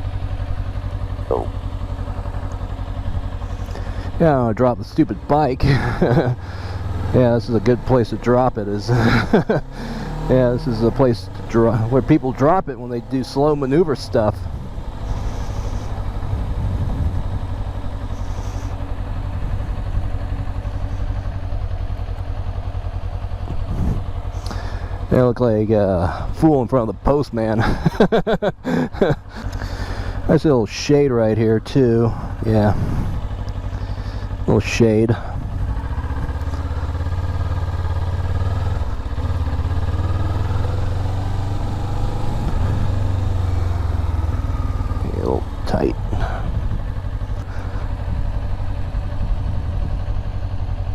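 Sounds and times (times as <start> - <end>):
motorcycle engine idling low: 0.0 - 50.9.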